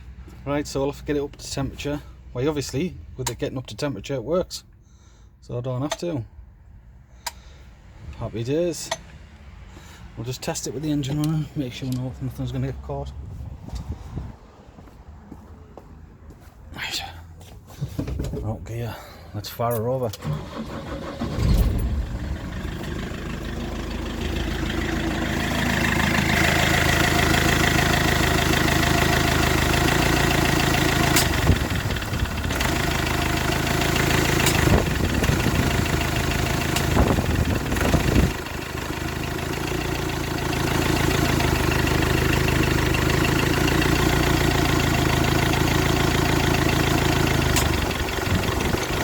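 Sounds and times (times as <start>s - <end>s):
van engine idling: 20.3s - 49.0s.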